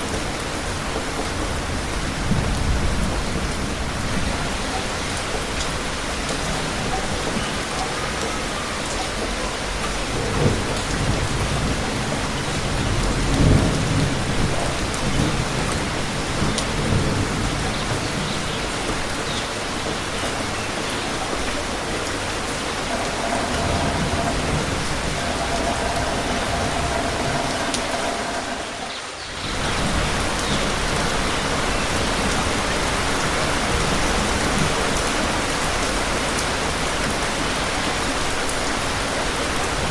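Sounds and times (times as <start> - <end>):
rain pattering: 0.0 - 39.9
thunder rumbles: 10.0 - 19.8, 21.4 - 35.4.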